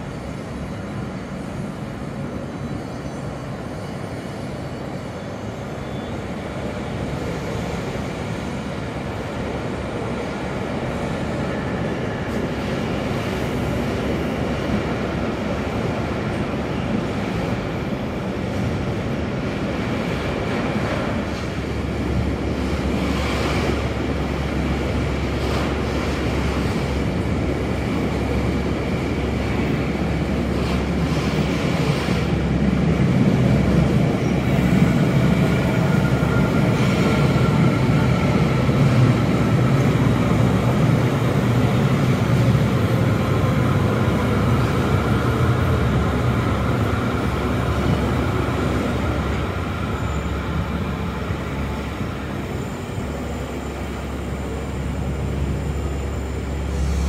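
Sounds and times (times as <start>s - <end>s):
electric train rumbling: 0.0s - 57.0s.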